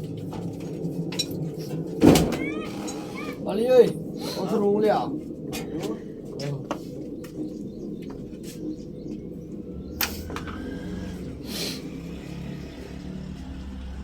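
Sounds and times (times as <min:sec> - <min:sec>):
diesel engine rumbling: 0:09.0 - 0:14.0.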